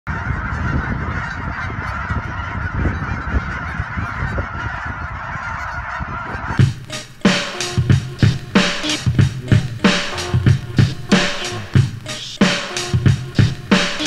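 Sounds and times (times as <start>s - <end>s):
waterfowl honking and calling: 0.1s - 14.0s.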